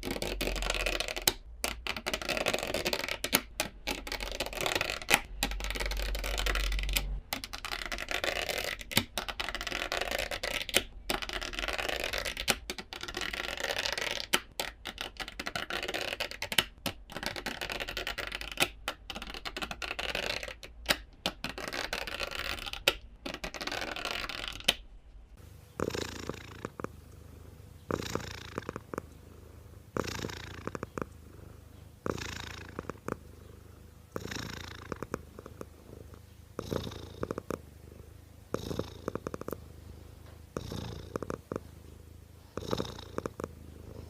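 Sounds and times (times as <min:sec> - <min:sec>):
cat purring: 0:00.0 - 0:24.7, 0:25.4 - 0:44.0
crackling scratchy clicks: 0:00.0 - 0:24.8, 0:25.9 - 0:26.9, 0:27.9 - 0:29.2, 0:30.0 - 0:31.2, 0:32.1 - 0:33.3, 0:34.2 - 0:35.7.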